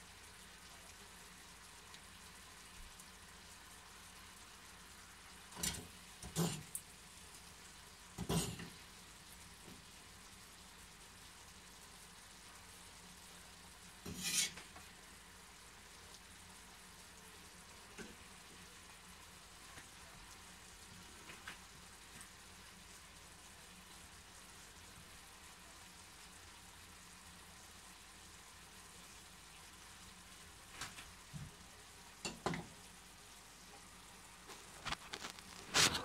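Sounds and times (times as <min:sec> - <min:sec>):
food sizzling in frying pan: 0:00.0 - 0:36.0
spatula clattering in pan: 0:05.6 - 0:06.7, 0:08.2 - 0:08.7, 0:14.1 - 0:14.7.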